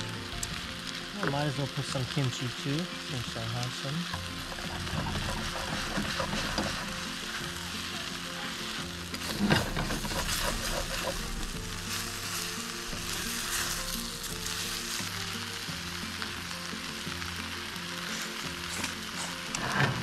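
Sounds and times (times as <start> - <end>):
noodles sizzling in a hot pan: 0.0 - 20.0
stirring with spatula and tongs: 4.1 - 15.2.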